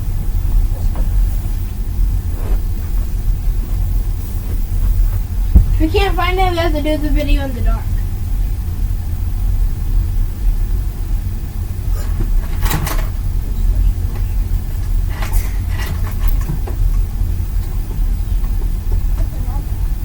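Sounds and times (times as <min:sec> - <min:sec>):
microphone handling rumble: 0:00.0 - 0:10.2.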